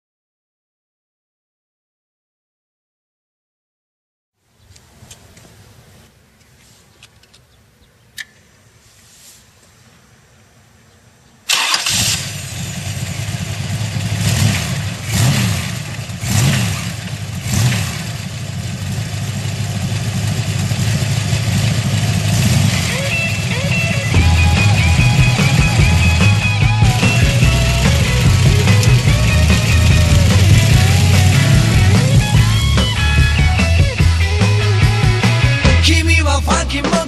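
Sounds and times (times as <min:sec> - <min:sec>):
sharp click: 0:08.2 - 0:08.4
motorcycle engine starting and revving: 0:11.5 - 0:37.0
motorcycle engine idling: 0:12.2 - 0:35.9.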